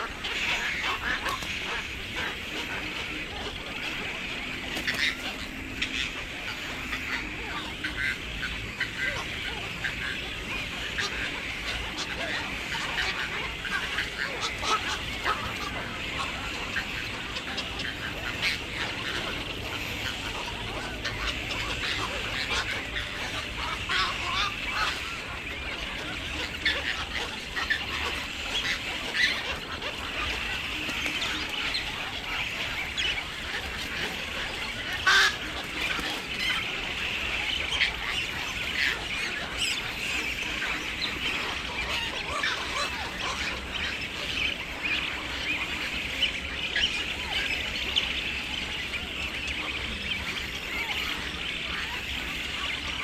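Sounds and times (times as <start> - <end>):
chorus of birds calling: 0.0 - 53.0.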